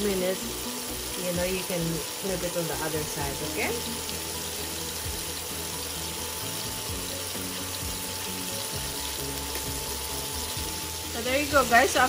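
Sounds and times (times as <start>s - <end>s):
burger patties sizzling in oil: 0.0s - 12.0s
soft background music: 0.0s - 12.0s.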